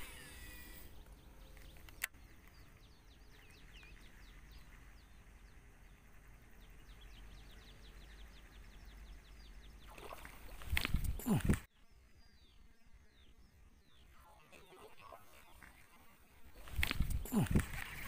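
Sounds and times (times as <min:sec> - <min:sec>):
high downward-sweeping bird chirps: 0:00.0 - 0:10.6.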